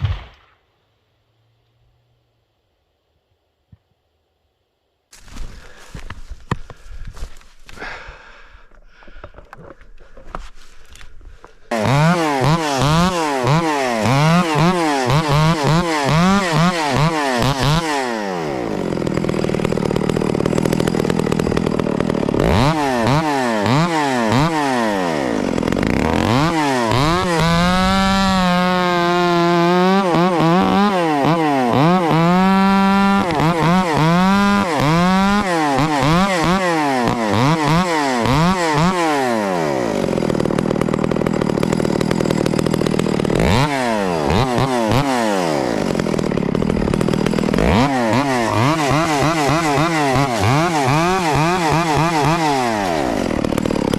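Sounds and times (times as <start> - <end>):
chainsaw throttle revving: 10.8 - 53.9.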